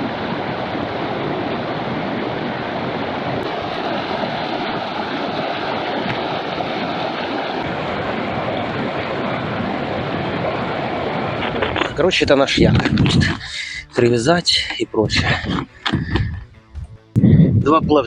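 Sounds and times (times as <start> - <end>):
small waves washing on shore: 0.0 - 13.6.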